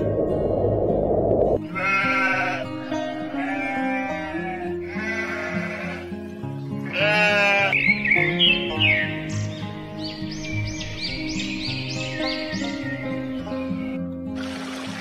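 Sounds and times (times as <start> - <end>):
background music: 0.0 - 15.0
goat kid bleating: 1.6 - 6.1, 6.8 - 7.8.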